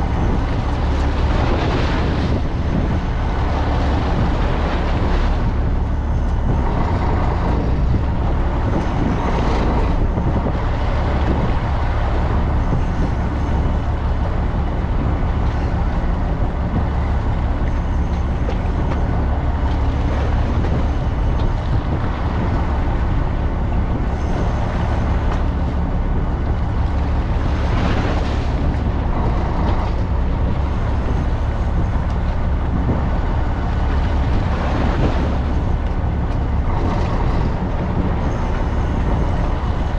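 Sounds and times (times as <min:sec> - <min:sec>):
boat engine droning: 0:00.0 - 0:39.9
rushing wind and water: 0:00.0 - 0:39.9.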